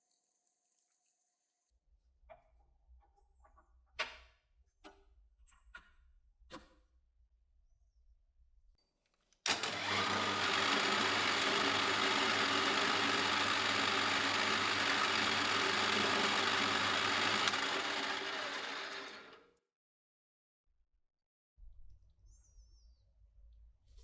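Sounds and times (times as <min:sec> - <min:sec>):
small electric motor running: 0:09.5 - 0:19.4.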